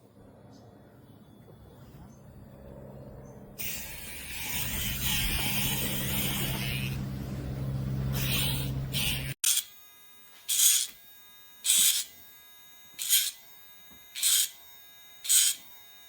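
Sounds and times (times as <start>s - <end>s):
grinding bursts on nail: 8.2s - 9.8s, 10.4s - 11.0s, 11.6s - 12.3s, 12.9s - 14.6s, 15.2s - 15.7s
nail grinder motor hum: 8.2s - 16.0s.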